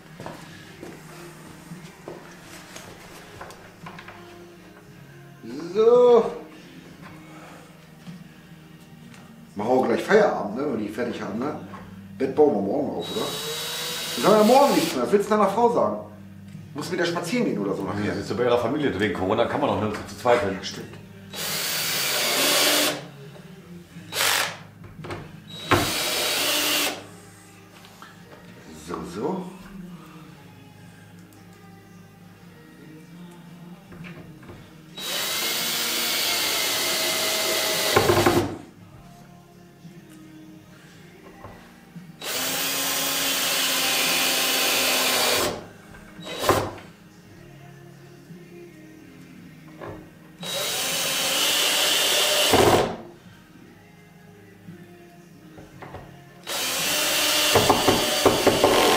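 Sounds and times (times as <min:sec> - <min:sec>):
cordless drill driving screws: 0:13.0 - 0:15.0, 0:21.3 - 0:23.1, 0:24.1 - 0:24.6, 0:25.5 - 0:27.0, 0:35.0 - 0:38.5, 0:42.2 - 0:45.6, 0:46.2 - 0:46.8, 0:50.4 - 0:53.0, 0:56.4 - 0:58.9.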